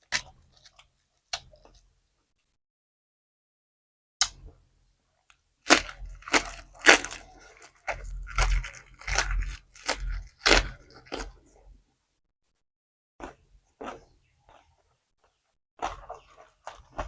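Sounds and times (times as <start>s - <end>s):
crunchy food being chewed: 5.7s - 11.7s, 13.2s - 17.0s.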